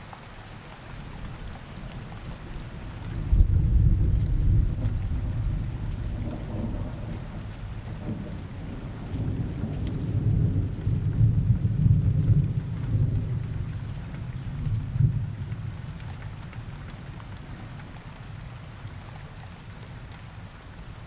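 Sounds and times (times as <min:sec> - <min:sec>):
rain falling: 0:00.0 - 0:21.0
low rolling thunder: 0:02.3 - 0:17.7.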